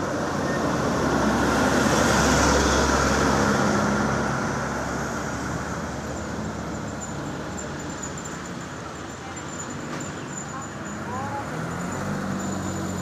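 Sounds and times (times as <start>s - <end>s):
truck driving past: 0.1s - 8.4s, 10.9s - 13.0s.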